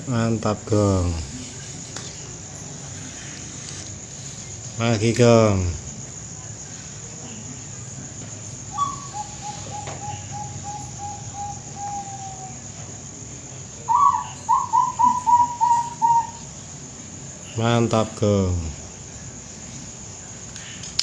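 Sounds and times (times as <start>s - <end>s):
dove cooing: 8.7s - 12.8s, 13.8s - 16.5s.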